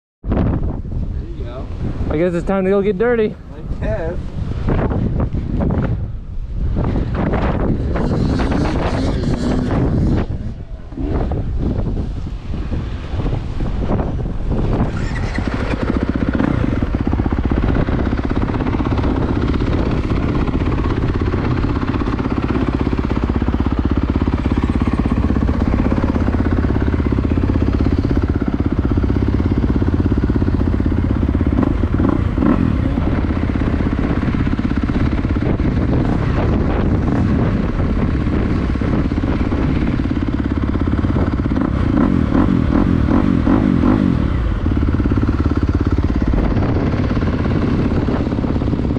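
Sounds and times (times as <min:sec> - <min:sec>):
motocross bike engine running: 0:14.5 - 0:48.9.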